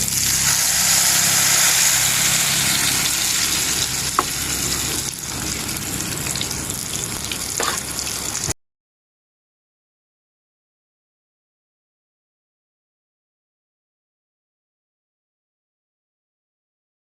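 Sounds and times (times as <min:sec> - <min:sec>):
fritters sizzling in oil: 0:00.0 - 0:08.6.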